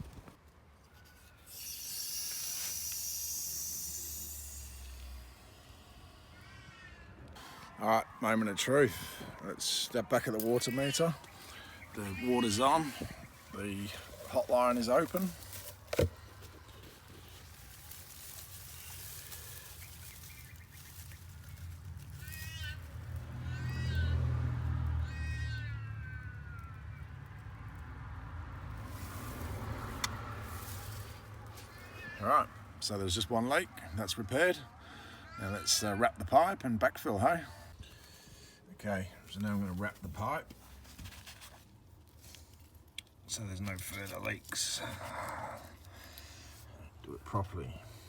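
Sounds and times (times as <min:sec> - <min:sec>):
water hissing through pipe: 0:01.4 - 0:06.4
cat meowing: 0:25.0 - 0:26.8.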